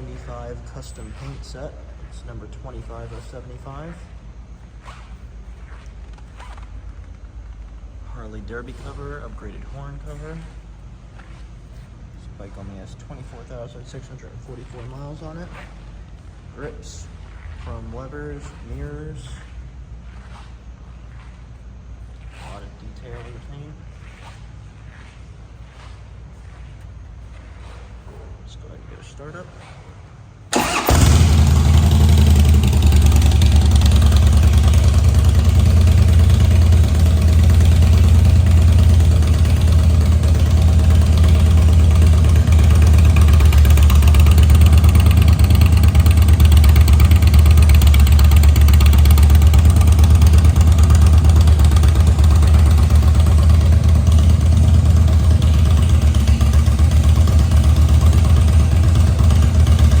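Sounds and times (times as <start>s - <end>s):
motorcycle engine idling: 30.5s - 60.0s.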